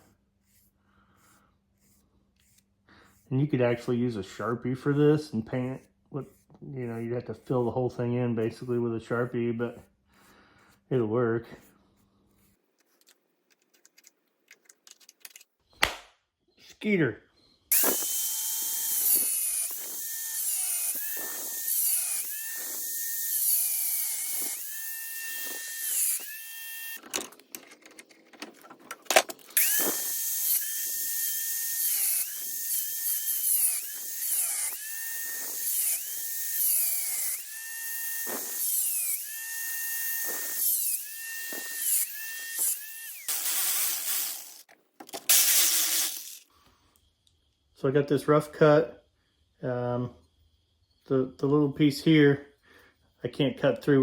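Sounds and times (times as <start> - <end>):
power tool motor under load: 17.7 - 27.0, 29.4 - 46.5.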